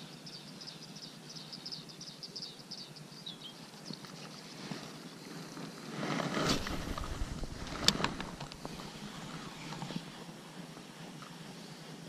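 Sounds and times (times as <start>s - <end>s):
small bird chirping: 0.0s - 5.3s.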